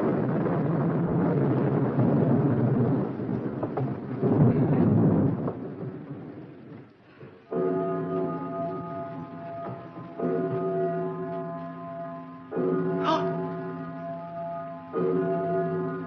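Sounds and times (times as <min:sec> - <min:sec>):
thunder rumbling: 0:00.0 - 0:16.0
music: 0:07.5 - 0:16.0.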